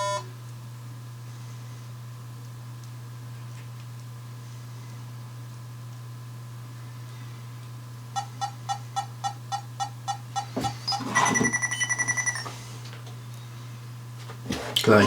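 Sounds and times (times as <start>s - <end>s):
short electronic beeps: 8.2s - 12.5s.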